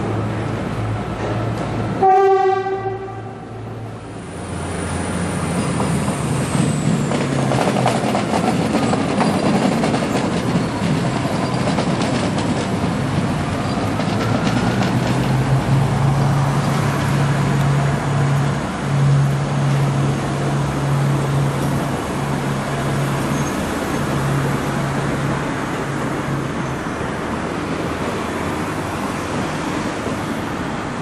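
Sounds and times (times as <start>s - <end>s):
train wheels clattering over rails: 5.1s - 17.7s.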